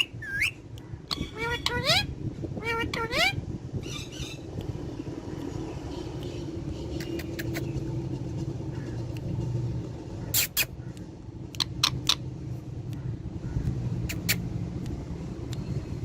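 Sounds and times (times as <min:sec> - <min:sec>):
parrot squeaking: 0:00.0 - 0:04.5, 0:10.3 - 0:10.8, 0:11.6 - 0:12.3
low hum: 0:00.1 - 0:16.0.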